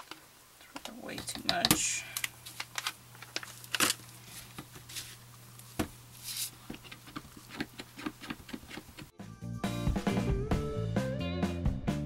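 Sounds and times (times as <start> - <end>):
spatula scraping jug: 6.2 - 9.1.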